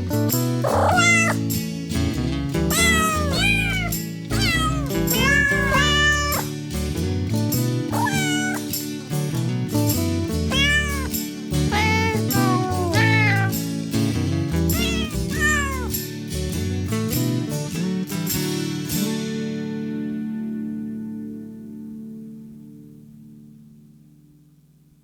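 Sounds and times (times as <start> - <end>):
cat meowing: 0.6 - 1.5, 2.7 - 6.5, 7.9 - 8.7, 10.5 - 13.6, 14.7 - 16.0.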